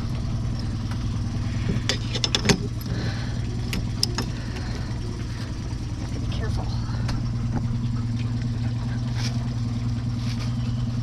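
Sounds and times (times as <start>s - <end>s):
boat engine idling: 0.0s - 11.0s
sharp knocks and clicks: 1.7s - 2.8s.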